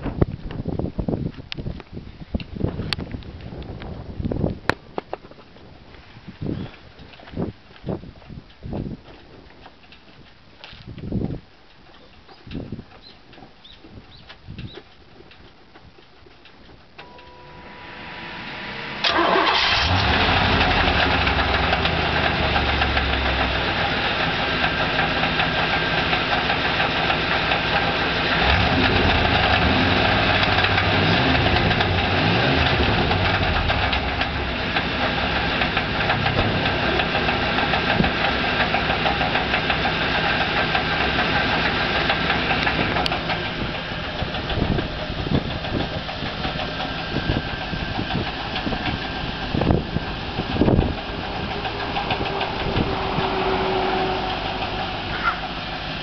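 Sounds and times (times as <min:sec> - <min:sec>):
car engine cranking and starting: 0:17.0 - 0:56.0
car engine idling: 0:17.0 - 0:56.0.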